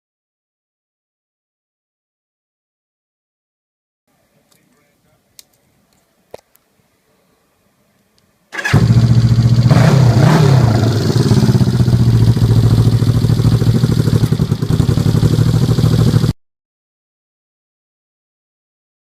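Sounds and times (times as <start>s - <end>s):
motorcycle engine idling and blipping: 8.5s - 16.4s.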